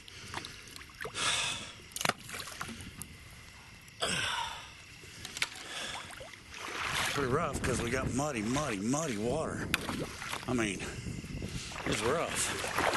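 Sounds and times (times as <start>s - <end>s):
water splashing and sloshing: 0.0s - 12.9s.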